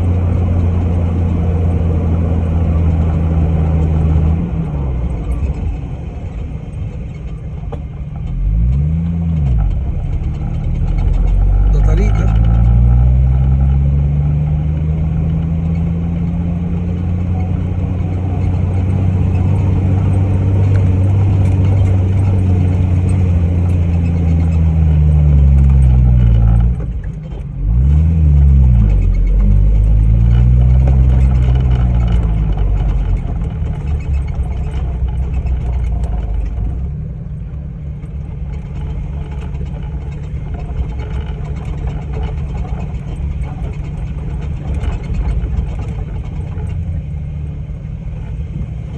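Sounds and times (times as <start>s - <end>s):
engine revving under load: 8.3s - 37.4s.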